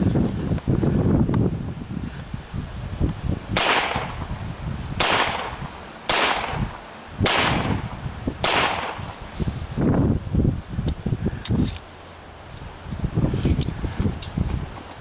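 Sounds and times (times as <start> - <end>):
rifle shots: 3.6 - 4.3, 5.0 - 9.2.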